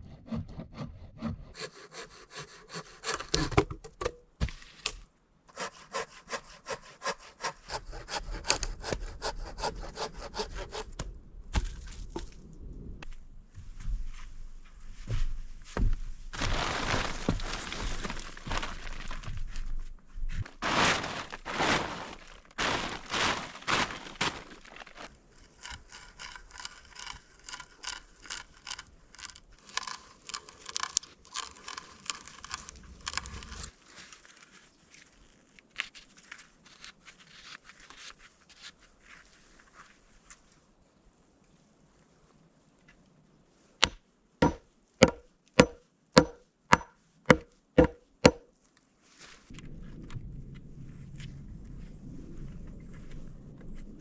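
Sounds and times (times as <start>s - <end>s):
knocks and scrapes on wood: 3.0s - 4.8s, 15.0s - 16.1s, 43.8s - 48.4s
light ticking and scraping: 24.9s - 33.7s.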